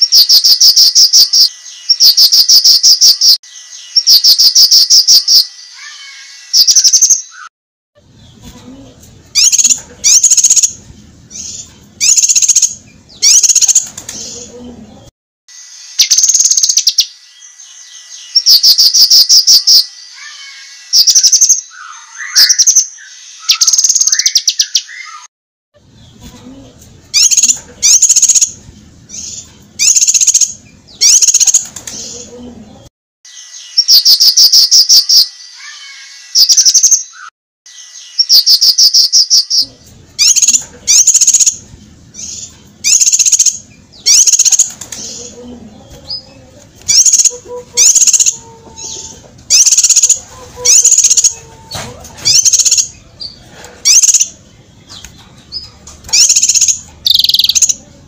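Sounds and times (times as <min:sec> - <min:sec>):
rapid bird trill: 0:00.0 - 0:07.5, 0:09.3 - 0:13.9, 0:15.9 - 0:25.3, 0:27.1 - 0:31.7, 0:33.3 - 0:44.8, 0:46.9 - 0:48.9, 0:49.5 - 0:51.4, 0:52.3 - 0:57.8.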